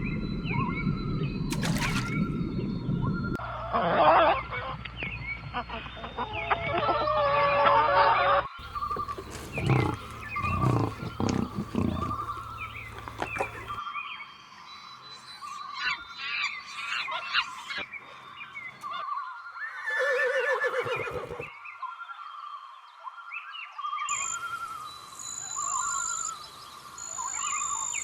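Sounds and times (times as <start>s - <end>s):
animal chirping calls: 8.6s - 13.8s
animal grunting: 8.6s - 13.8s.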